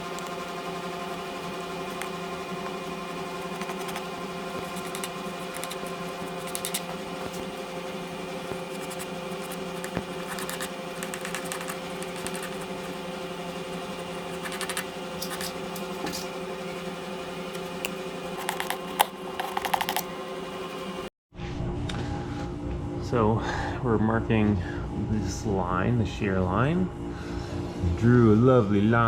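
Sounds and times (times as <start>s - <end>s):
power sander motor hum: 0.0s - 21.1s.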